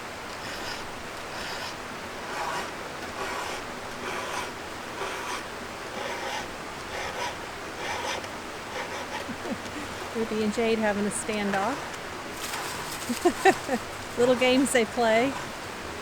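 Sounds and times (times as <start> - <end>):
file rasping on chainsaw chain: 0.3 - 9.5.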